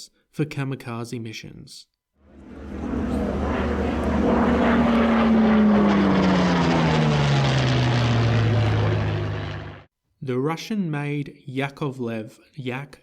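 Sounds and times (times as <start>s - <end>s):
propeller plane flying past: 2.2s - 9.9s.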